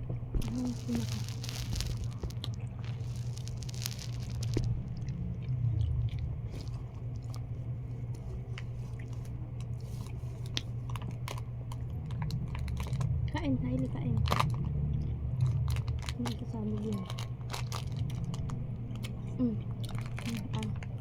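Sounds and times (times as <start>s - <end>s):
steady low hum: 0.0s - 21.0s
short crunches and clicks: 0.4s - 5.1s
chewing and biting: 0.4s - 13.2s, 14.2s - 21.0s.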